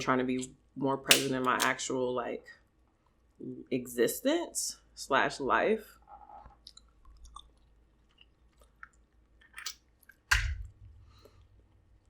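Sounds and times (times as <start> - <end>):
wet chewing: 6.6 - 9.0.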